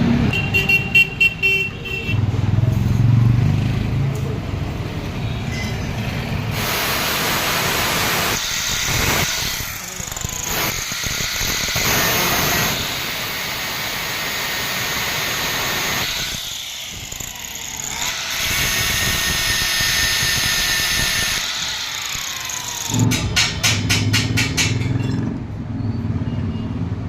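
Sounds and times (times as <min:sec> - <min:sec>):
power tool cutting steel: 0:06.4 - 0:25.2.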